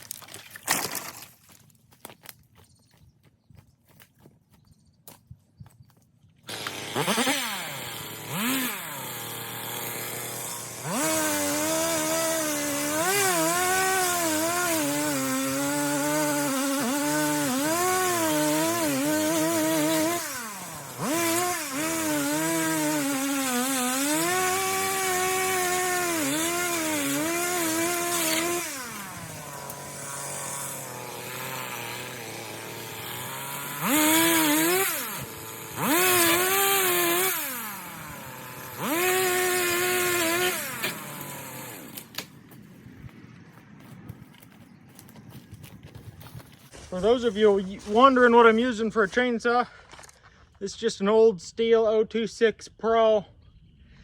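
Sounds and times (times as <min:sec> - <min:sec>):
chainsaw cutting wood: 0:06.4 - 0:43.0.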